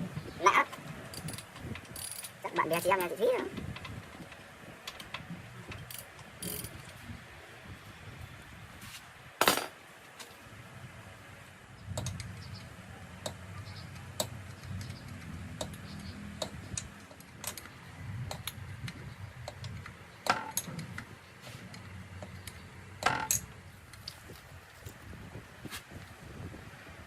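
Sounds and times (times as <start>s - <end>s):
metal tools clinking and knocking: 9.4s - 9.7s, 22.4s - 24.4s.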